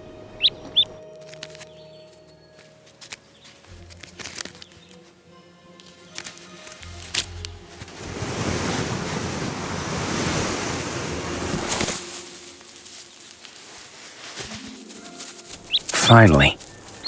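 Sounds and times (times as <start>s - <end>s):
rushing wind-like noise: 7.9s - 12.1s.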